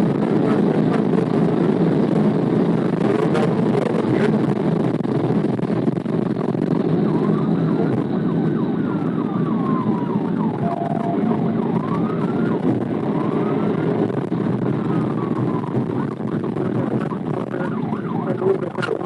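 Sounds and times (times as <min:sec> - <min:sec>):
vehicle engine and road noise: 0:00.0 - 0:19.0
police siren wailing and yelping: 0:06.8 - 0:19.0.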